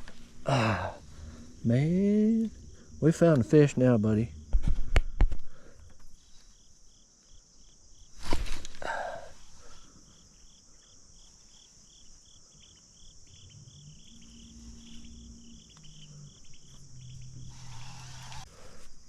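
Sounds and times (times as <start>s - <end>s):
high-pitched insect drone: 0.0s - 4.6s, 8.9s - 19.0s
crickets chirping: 0.0s - 19.0s.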